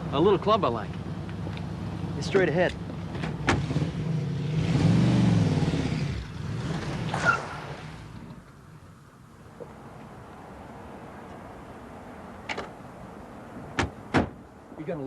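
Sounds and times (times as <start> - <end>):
car engine accelerating: 1.7 - 8.2.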